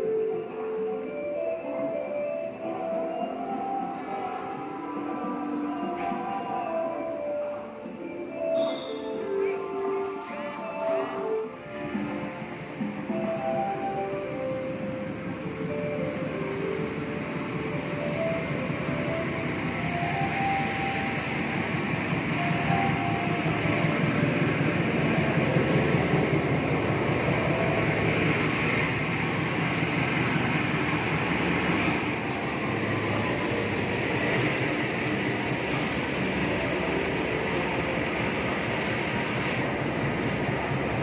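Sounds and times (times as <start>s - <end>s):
diesel locomotive passing: 0.0s - 41.0s
train coaches rolling on rails: 0.0s - 41.0s.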